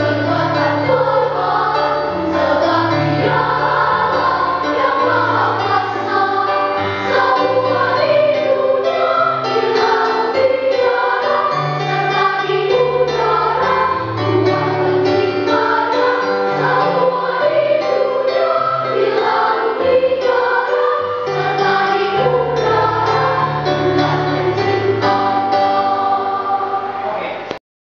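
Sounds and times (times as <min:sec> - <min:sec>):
children's choir singing: 0:00.0 - 0:27.6.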